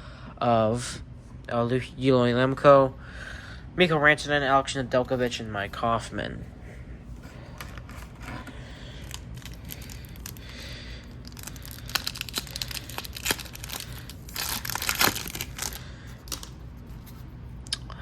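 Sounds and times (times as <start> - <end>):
foil wrapper crinkling and tearing: 7.6 - 17.2.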